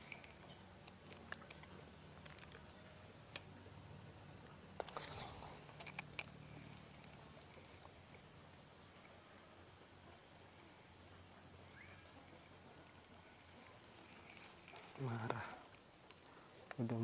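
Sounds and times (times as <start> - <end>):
rustling: 13.5 - 17.0.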